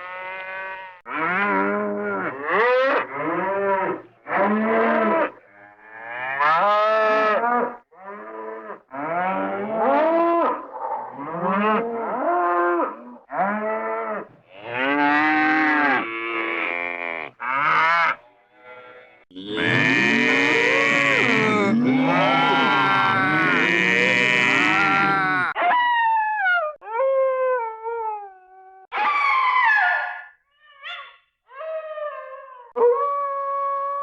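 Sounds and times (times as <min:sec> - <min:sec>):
cartoon cow mooing: 0:14.6 - 0:25.6.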